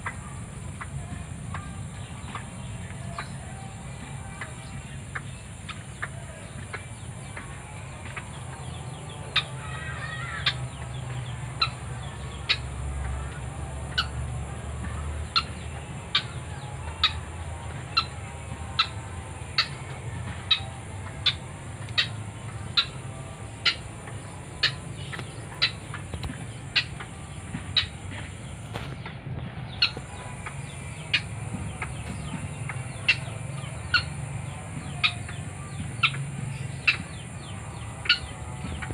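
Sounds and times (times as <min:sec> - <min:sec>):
bird calling sharp notes: 0:09.3 - 0:10.8, 0:17.9 - 0:28.8.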